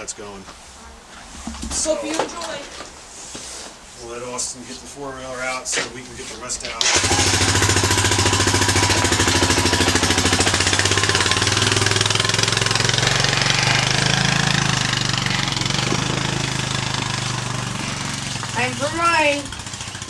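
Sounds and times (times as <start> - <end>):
atv engine puttering: 6.6 - 20.0.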